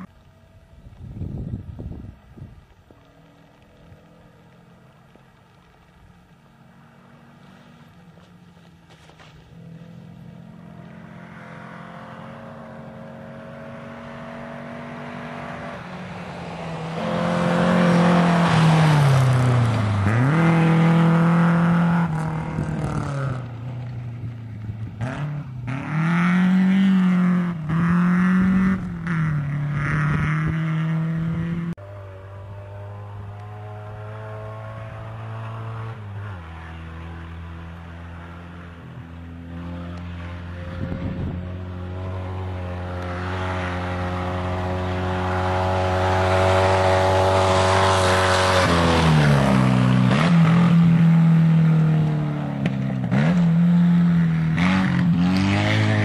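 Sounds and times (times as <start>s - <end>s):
rally car engine passing: 3.2s - 56.0s.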